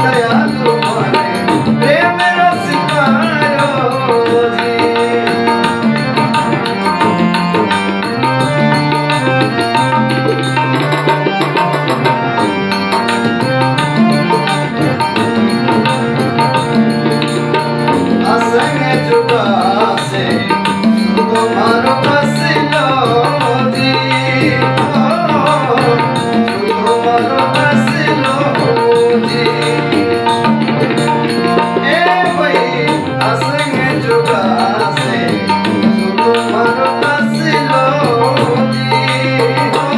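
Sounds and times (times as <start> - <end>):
man singing: 0.0 - 7.8, 18.0 - 30.8, 31.5 - 39.9
hand drum rhythm: 0.0 - 39.9
sustained melody: 0.0 - 39.9.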